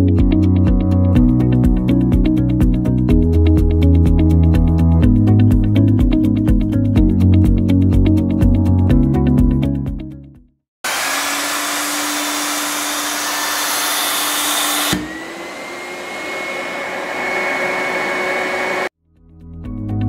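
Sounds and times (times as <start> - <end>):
vacuum cleaner running: 10.8 - 19.0.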